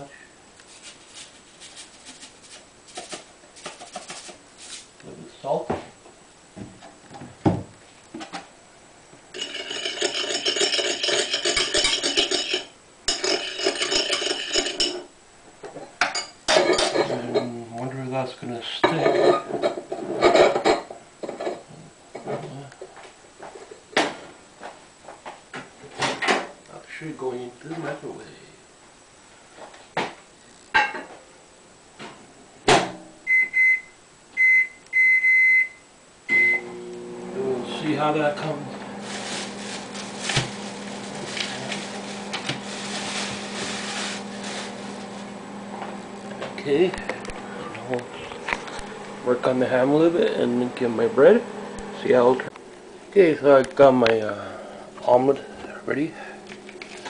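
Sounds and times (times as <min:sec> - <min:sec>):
fork beating eggs: 0:00.6 - 0:04.9
microwave running hum: 0:33.2 - 0:57.0.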